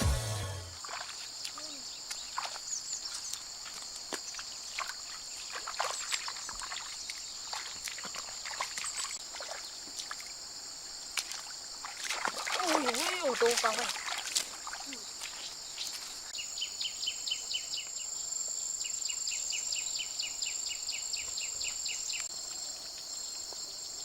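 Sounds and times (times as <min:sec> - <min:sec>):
small water splashes: 0:00.8 - 0:16.4
high-pitched insect chorus: 0:00.8 - 0:24.0.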